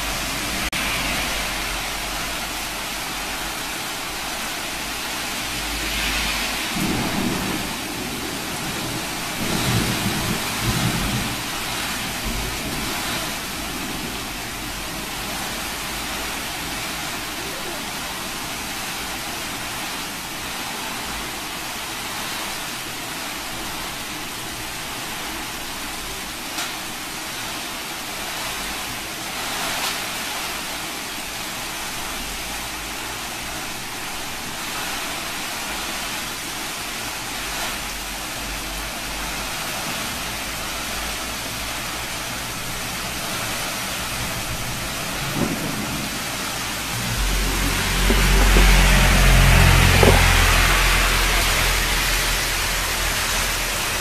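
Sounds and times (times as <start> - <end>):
wind rumbling: 0.0 - 19.8, 37.8 - 54.0
heavy rain hissing: 0.0 - 54.0.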